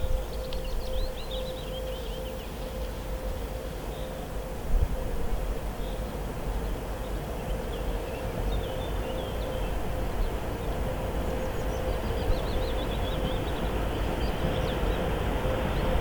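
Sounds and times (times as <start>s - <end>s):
faint constant hum: 0.0s - 16.0s
freight train rumbling: 4.4s - 16.0s.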